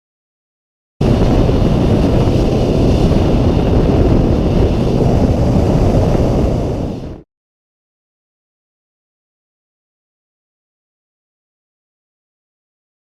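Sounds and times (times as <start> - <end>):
wind on microphone: 1.0 - 7.2.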